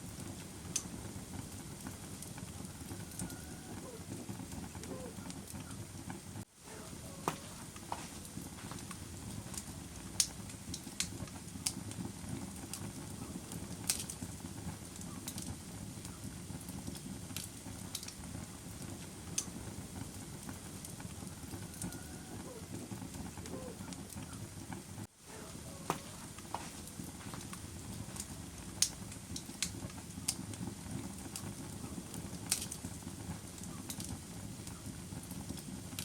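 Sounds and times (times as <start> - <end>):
fire crackling pops: 0.0 - 36.0
wood fire rumbling: 0.0 - 36.0.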